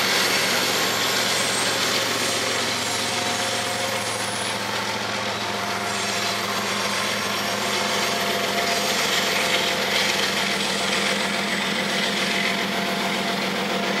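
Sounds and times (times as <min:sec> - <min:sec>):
steel wheels grinding on rail: 0:00.0 - 0:14.0.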